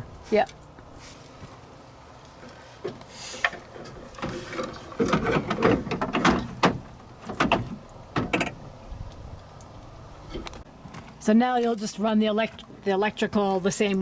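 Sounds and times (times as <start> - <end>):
metal bracket clanking and rattling: 3.5 - 8.6.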